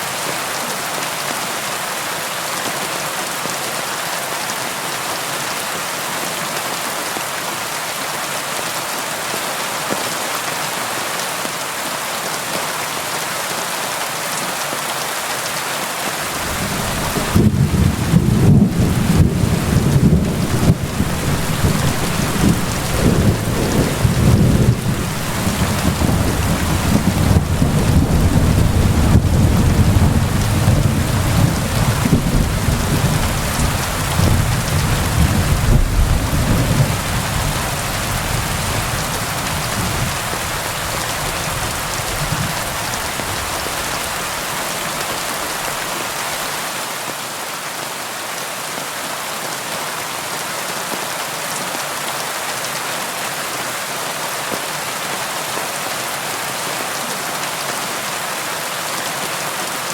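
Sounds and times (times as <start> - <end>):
heavy rain hissing: 16.0 - 46.9
low thunder rumbling: 16.3 - 44.2.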